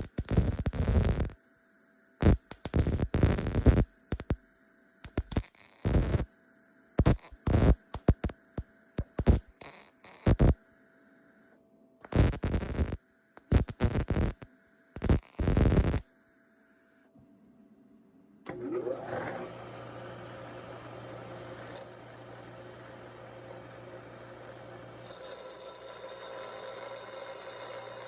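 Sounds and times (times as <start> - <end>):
welder bursts: 12.0 - 16.0.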